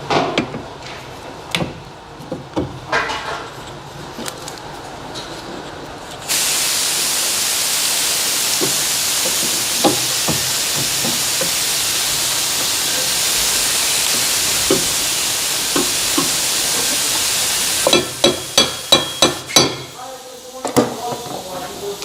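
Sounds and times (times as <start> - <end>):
high-pitched hiss: 6.3 - 22.0
sharp knocks with metallic ring: 17.9 - 20.0.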